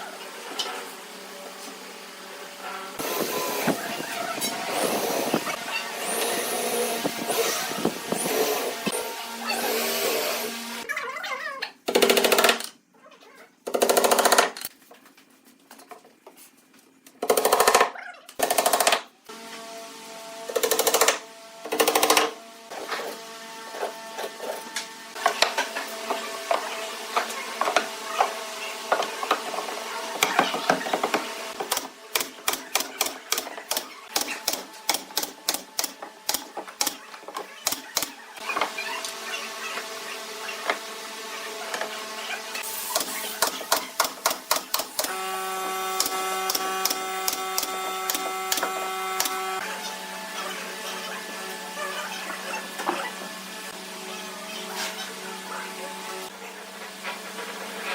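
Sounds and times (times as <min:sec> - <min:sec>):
loud tool bursts: 0:42.6 - 0:49.4.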